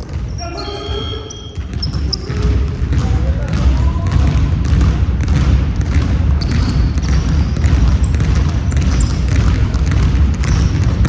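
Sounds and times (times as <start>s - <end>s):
ball bouncing on floor: 0.0s - 11.0s
high squeaks: 0.3s - 2.4s.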